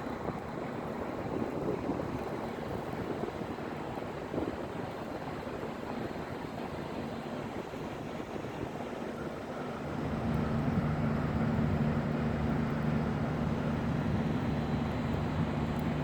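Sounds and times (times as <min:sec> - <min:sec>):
wind rumbling on microphone: 0:00.0 - 0:16.0
train humming: 0:09.8 - 0:16.0.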